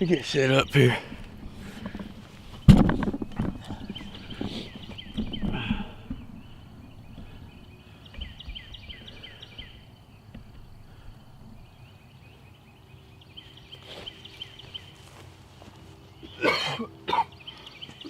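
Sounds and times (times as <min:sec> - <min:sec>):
small birds chirping: 0:00.0 - 0:18.0
handling knocks and rustles: 0:01.0 - 0:07.5.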